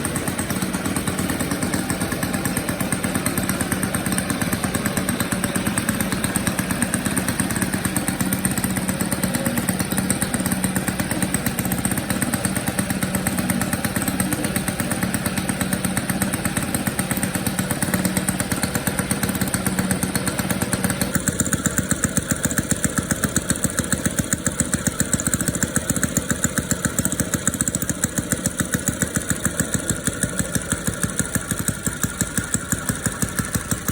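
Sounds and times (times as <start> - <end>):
model aircraft engine running: 0.0 - 33.9.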